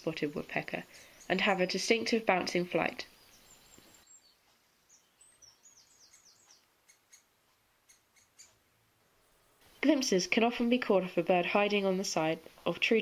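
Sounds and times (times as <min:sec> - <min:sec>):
falling bird chirps: 0:03.0 - 0:08.6.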